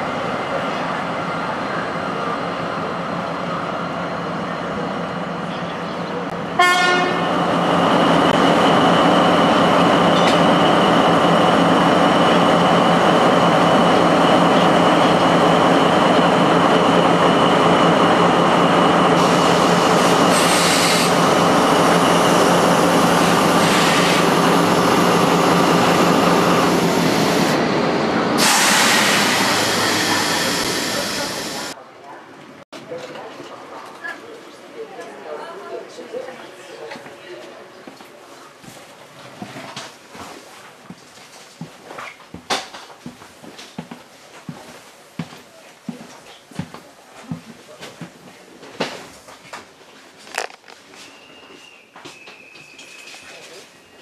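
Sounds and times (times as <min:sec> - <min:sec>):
train rumbling on rails: 0:00.0 - 0:31.8.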